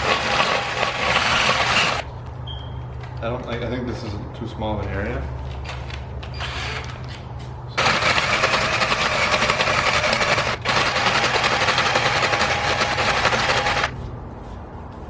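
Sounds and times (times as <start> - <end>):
drill grinding metal rim: 0.0 - 2.1, 7.8 - 14.0.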